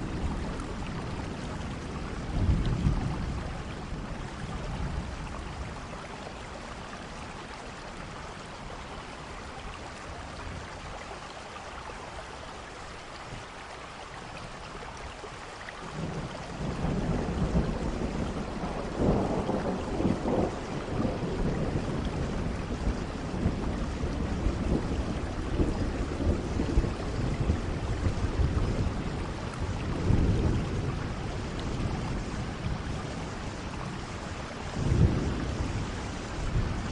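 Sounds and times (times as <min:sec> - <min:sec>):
steady rain: 0:00.0 - 0:36.9
thunder rolling: 0:16.0 - 0:36.9.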